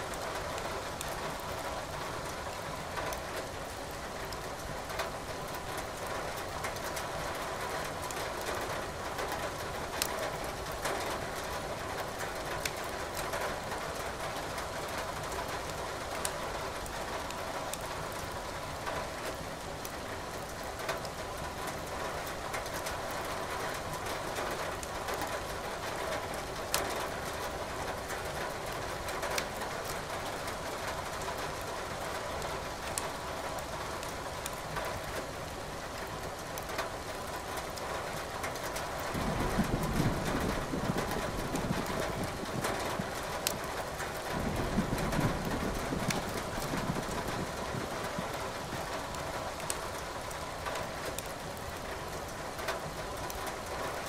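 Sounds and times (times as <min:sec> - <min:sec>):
steady rain: 0:00.0 - 0:54.0
wood crackling in fireplace: 0:41.0 - 0:53.6.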